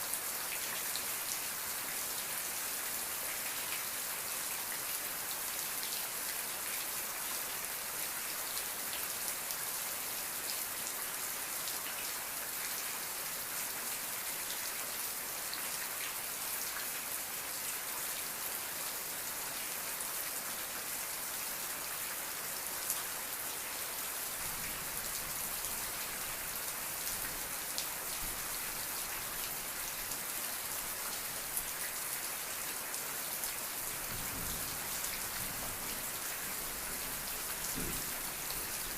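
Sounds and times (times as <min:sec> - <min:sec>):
heavy rain falling: 0:22.9 - 0:38.9.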